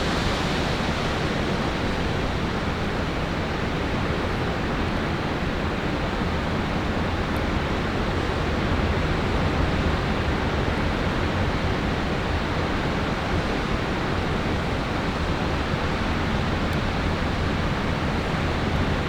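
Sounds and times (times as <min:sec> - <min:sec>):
wind blowing across microphone: 0:00.0 - 0:19.0.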